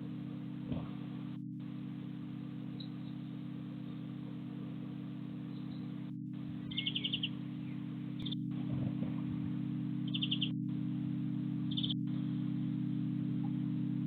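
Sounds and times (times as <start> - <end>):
low hum with faint hiss: 0.0 - 14.0
small bird chirping: 2.7 - 4.1, 5.4 - 8.5, 10.0 - 10.6, 11.7 - 12.3.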